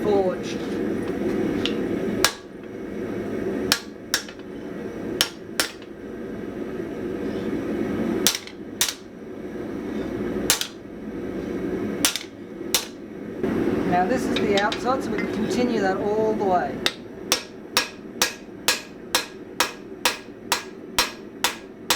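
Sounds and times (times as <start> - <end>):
steady background noise: 0.0 - 21.9
hammer striking steel on anvil: 1.7 - 2.5, 3.7 - 4.5, 5.2 - 5.9, 8.3 - 9.0, 10.5 - 10.8, 12.0 - 13.0, 16.8 - 21.9.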